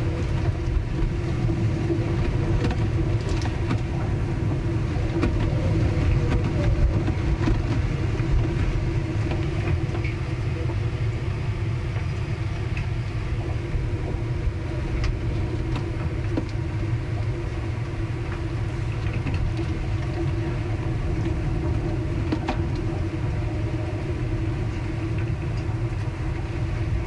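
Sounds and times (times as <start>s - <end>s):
constant hum: 0.0s - 27.0s
low rumble: 0.0s - 27.0s
small clicks and creaks: 5.1s - 10.8s.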